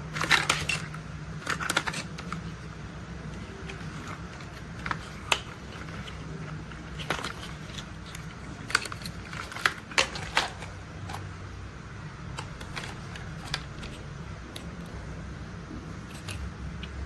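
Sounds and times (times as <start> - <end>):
low steady hum: 0.0 - 17.0
toy parts clicking and knocking: 0.1 - 2.6, 3.3 - 11.3, 16.0 - 17.0.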